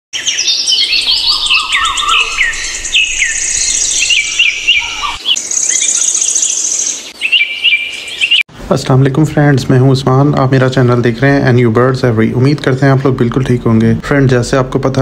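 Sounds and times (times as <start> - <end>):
rapid high bird trill: 0.2 - 8.5
small birds chirping: 0.2 - 8.5.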